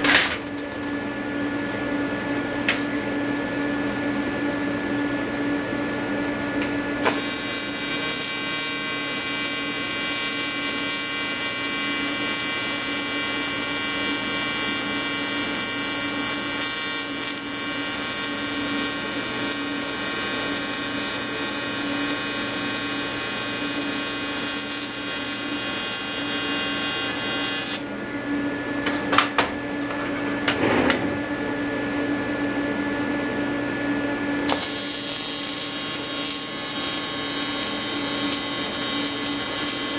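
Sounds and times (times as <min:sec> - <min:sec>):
welding arc buzzing: 0:06.6 - 0:27.9, 0:34.4 - 0:39.9.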